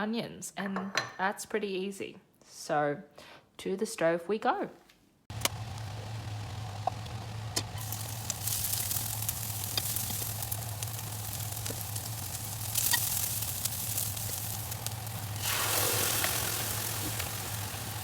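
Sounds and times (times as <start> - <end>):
low hum: 5.3 - 18.0
onions sizzling in oil: 5.4 - 18.0.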